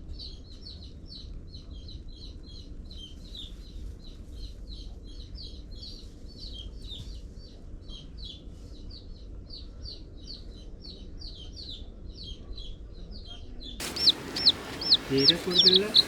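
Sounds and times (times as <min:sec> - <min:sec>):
chicks peeping: 0:13.8 - 0:16.0.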